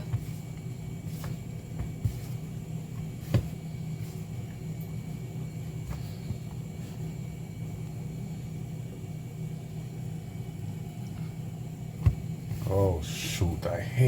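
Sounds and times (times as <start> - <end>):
low kitchen hum: 0.0 - 14.0.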